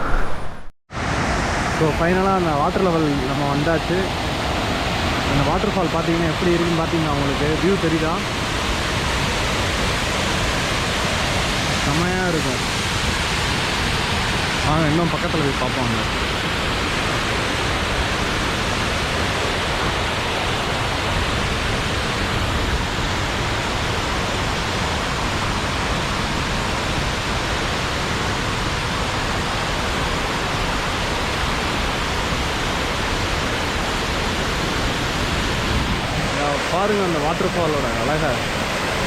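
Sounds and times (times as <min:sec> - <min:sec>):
waterfall rushing: 0:00.9 - 0:39.0.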